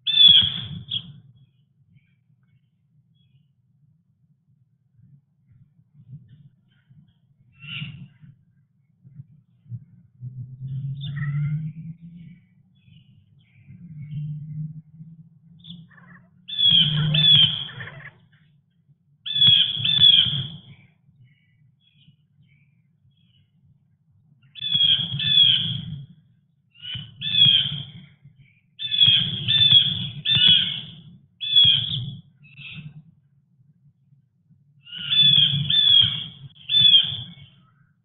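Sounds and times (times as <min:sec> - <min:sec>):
birds calling harshly: 0:00.1 - 0:01.2, 0:07.5 - 0:08.3, 0:15.6 - 0:18.5, 0:19.3 - 0:23.4, 0:24.4 - 0:26.1, 0:26.7 - 0:33.0, 0:34.8 - 0:37.9.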